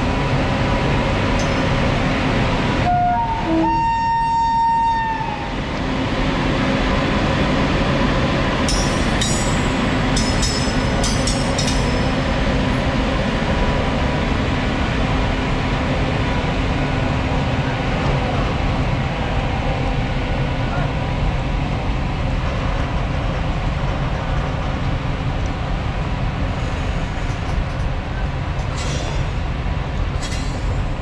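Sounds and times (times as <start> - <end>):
freight train rumbling: 0.0 - 31.0
locomotive horn: 2.8 - 5.5.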